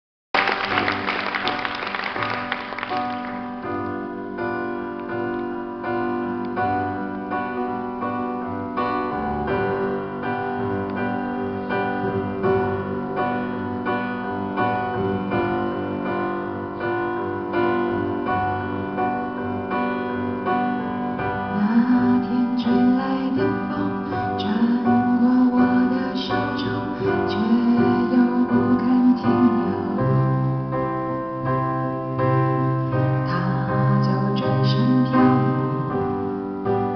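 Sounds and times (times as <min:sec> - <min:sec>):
piano playing repeated chords: 0:00.3 - 0:36.9.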